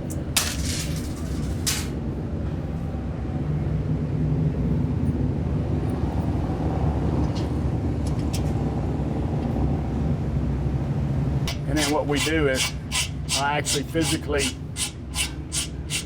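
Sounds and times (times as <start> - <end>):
low mechanical rumble: 0.0 - 11.8.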